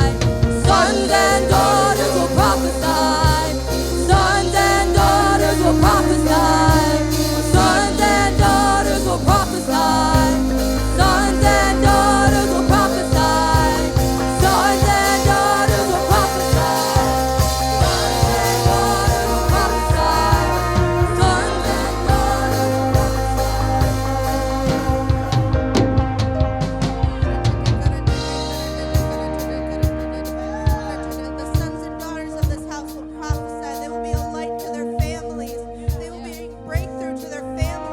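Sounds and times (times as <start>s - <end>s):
people singing: 0.0s - 25.7s
drum beat: 0.0s - 29.4s
bass: 0.0s - 37.9s
keyboard: 0.0s - 37.9s.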